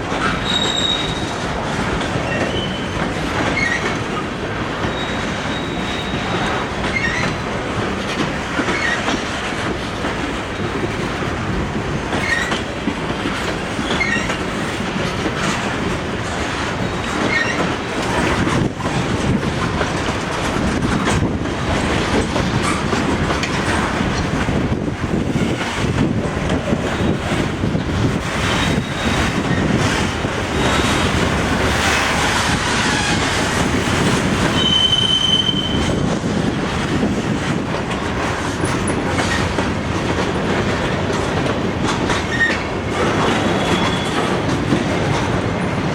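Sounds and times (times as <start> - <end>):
train wheels rumbling on rail: 0.0 - 45.9
wheel squeals: 0.2 - 1.4, 2.2 - 4.0, 4.8 - 7.4, 13.7 - 14.4, 16.8 - 19.0, 28.3 - 31.3, 34.4 - 36.0, 42.2 - 42.7, 43.4 - 44.4.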